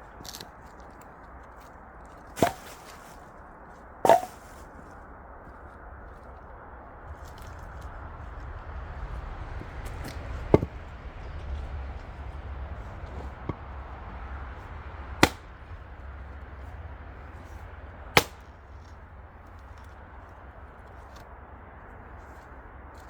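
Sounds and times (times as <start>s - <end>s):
axe chopping firewood: 0.2s - 0.5s, 2.1s - 3.2s, 4.0s - 4.8s, 9.6s - 10.9s, 12.8s - 16.0s, 18.1s - 19.0s.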